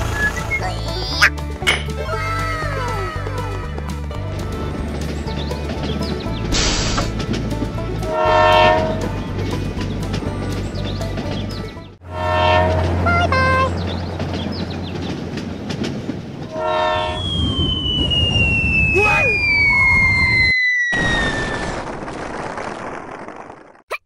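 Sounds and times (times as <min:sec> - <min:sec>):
running rumble: 0:00.0 - 0:18.9
train horn blowing: 0:08.0 - 0:09.2, 0:12.0 - 0:13.9, 0:16.5 - 0:17.2
high whistle sliding downward: 0:16.9 - 0:21.6.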